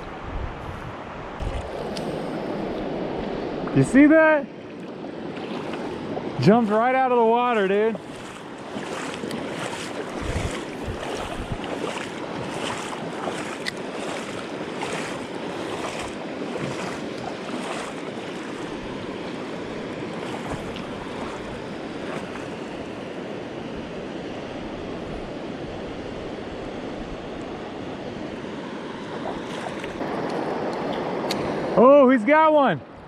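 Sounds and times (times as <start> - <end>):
wind buffeting microphone: 0.0 - 4.0, 7.8 - 23.0
river rushing: 1.0 - 32.5.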